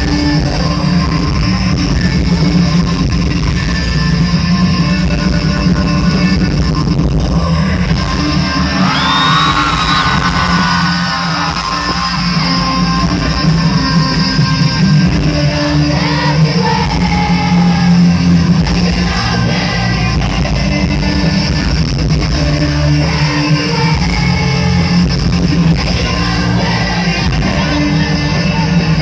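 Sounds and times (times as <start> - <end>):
bass guitar: 0.0 - 29.0
drums: 0.0 - 29.0
electric guitar: 0.0 - 29.0
person singing: 7.4 - 29.0.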